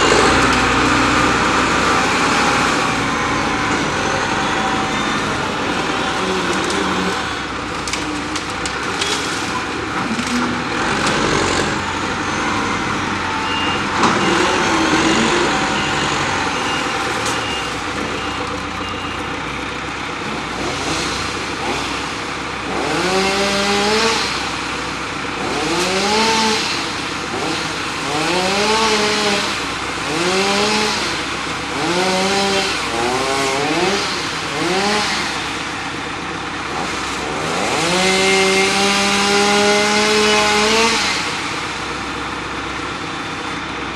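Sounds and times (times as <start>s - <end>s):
engine revving: 0.0s - 18.5s, 20.2s - 35.8s, 36.6s - 41.9s
heavy equipment engines running: 0.0s - 43.9s
reversing beeper beeps: 3.0s - 5.5s, 12.0s - 19.4s.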